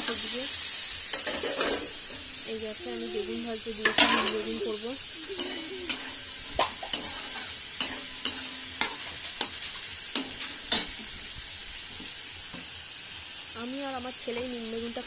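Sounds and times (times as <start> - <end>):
eggplant sizzling in oil: 0.0 - 15.0
steel spatula scraping and tapping: 5.3 - 11.1.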